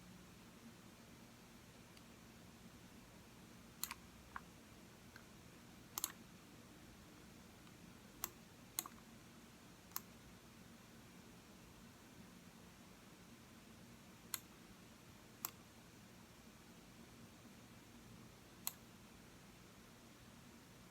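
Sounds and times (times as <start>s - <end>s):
faint room hum: 0.0s - 20.9s
mouse buttons clicking: 3.8s - 4.5s, 6.0s - 6.2s, 8.2s - 9.0s.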